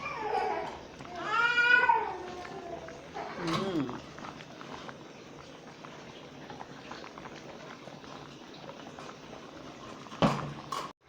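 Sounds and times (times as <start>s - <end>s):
soup bubbling in a pot: 0.0s - 10.9s
short loud voice: 3.4s - 4.0s.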